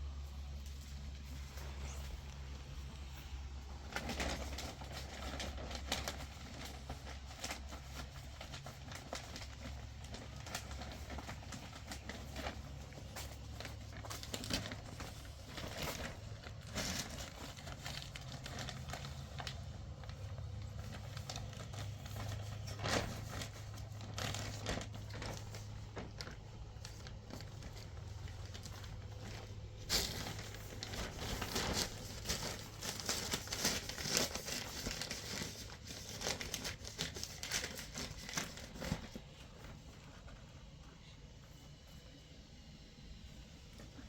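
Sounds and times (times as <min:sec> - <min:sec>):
crinkling and rustling: 0:00.0 - 0:42.4
steady low hum: 0:00.0 - 0:44.0.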